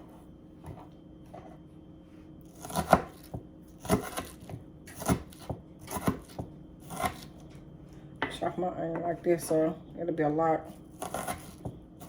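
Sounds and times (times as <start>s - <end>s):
knife chopping on cutting board: 2.6s - 7.3s, 11.0s - 11.8s.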